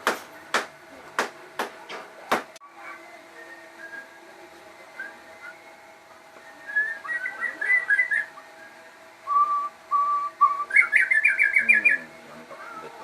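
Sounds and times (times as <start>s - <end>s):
songbird singing warbled notes: 6.4s - 12.1s.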